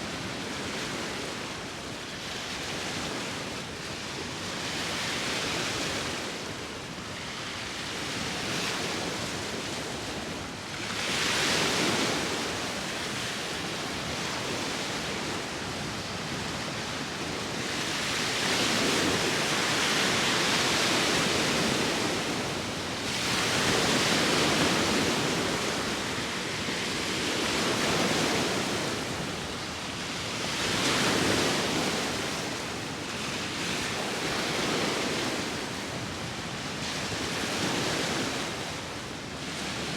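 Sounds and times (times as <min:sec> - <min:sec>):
wind: 0:00.0 - 0:39.9
sea waves breaking: 0:08.2 - 0:39.9.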